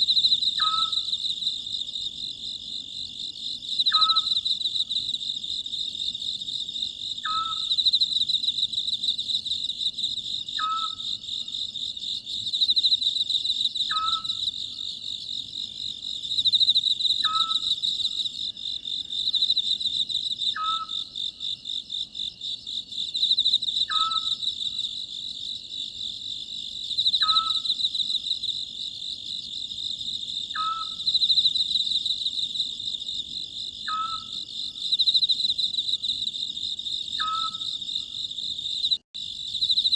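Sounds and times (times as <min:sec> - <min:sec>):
crickets chirring: 0:00.0 - 0:39.9
owl calling: 0:00.6 - 0:01.1, 0:03.9 - 0:04.4, 0:07.2 - 0:07.7, 0:10.6 - 0:11.1, 0:13.9 - 0:14.4, 0:17.2 - 0:17.7, 0:20.6 - 0:21.0, 0:23.9 - 0:24.4, 0:27.2 - 0:27.7, 0:30.6 - 0:31.0, 0:33.9 - 0:34.4, 0:37.2 - 0:37.7.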